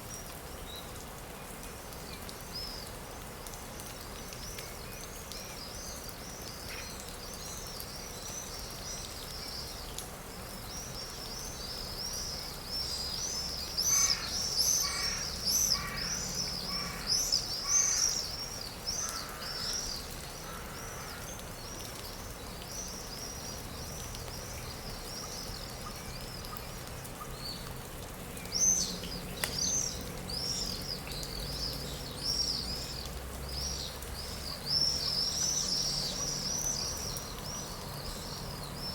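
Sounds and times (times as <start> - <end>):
loud bird calls: 13.8 - 21.2.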